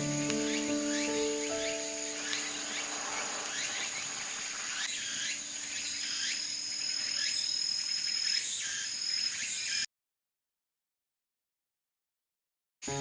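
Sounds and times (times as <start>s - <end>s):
high-pitched insect trill: 0.0s - 9.8s
short falling insect chirps: 0.0s - 9.8s.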